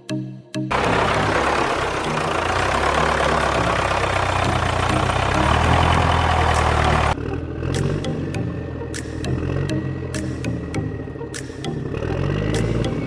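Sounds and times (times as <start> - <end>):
engine rattle: 0.7 - 8.2
heavy vehicle engine rumbling: 0.7 - 13.0.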